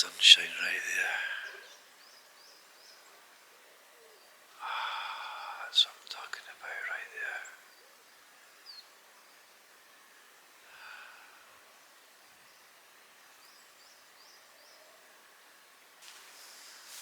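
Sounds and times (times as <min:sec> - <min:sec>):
soft breath-like rush: 0:00.0 - 0:01.9, 0:03.9 - 0:08.0, 0:09.8 - 0:12.4, 0:16.0 - 0:17.0.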